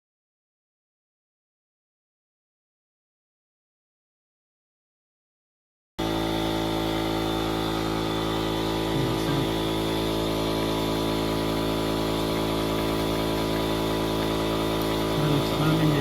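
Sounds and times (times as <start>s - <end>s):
motor humming steadily: 6.0s - 16.0s.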